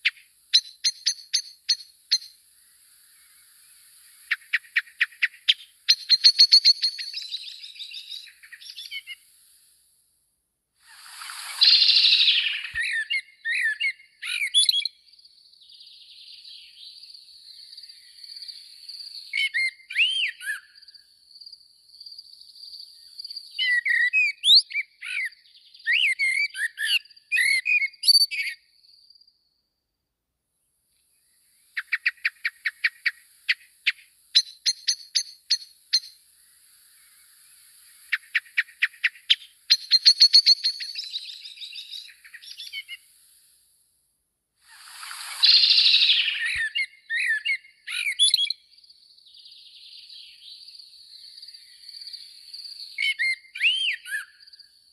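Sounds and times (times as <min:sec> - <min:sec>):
small birds chirping and singing: 0:00.0 - 0:09.3, 0:10.9 - 0:29.3, 0:31.2 - 0:43.1, 0:44.7 - 0:54.9
harsh rasping bird call: 0:10.9 - 0:14.5, 0:44.7 - 0:48.1.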